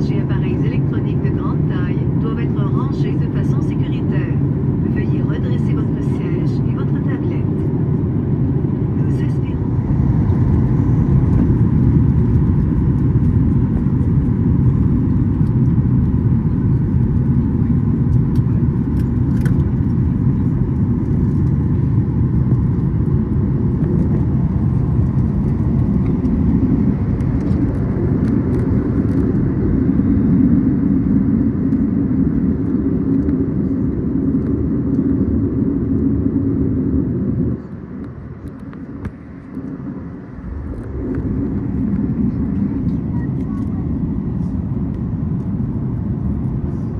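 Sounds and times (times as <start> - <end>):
airliner cabin engine rumble: 0.0 - 46.9.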